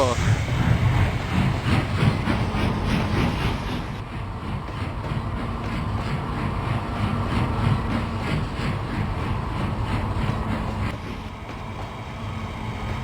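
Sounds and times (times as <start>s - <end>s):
steam locomotive chuffing: 0.0s - 13.0s
train running rumble: 0.0s - 13.0s.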